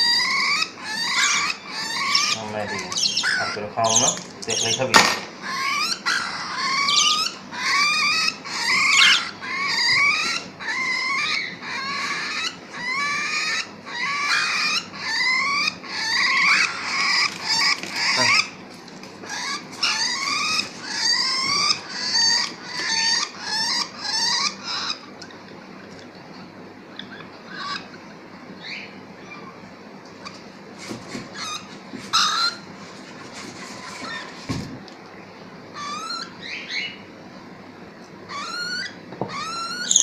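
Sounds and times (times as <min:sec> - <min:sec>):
parrot chick begging calls: 0:00.0 - 0:18.6, 0:19.2 - 0:25.1, 0:35.8 - 0:37.0, 0:38.3 - 0:40.0.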